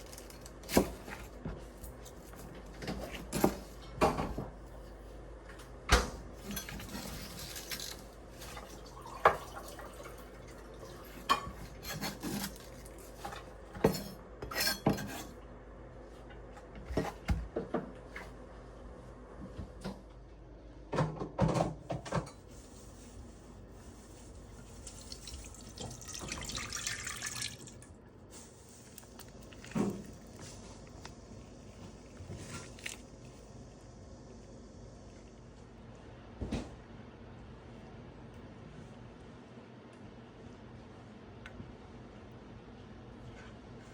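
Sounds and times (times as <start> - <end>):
utensils and dishes clinking: 6.4 - 10.2
water running: 8.5 - 11.7, 24.3 - 28.0.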